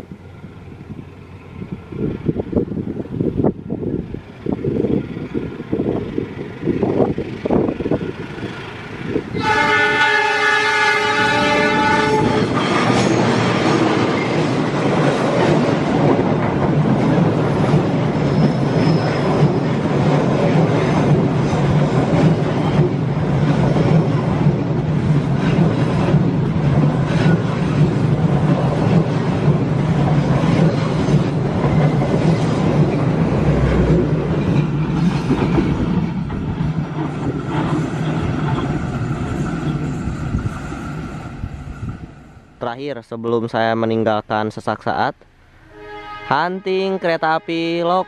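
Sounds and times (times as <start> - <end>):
diesel locomotive rumble: 0.0 - 42.9
train horn: 9.3 - 13.4, 45.6 - 48.0
train wheel clatter: 11.3 - 42.0.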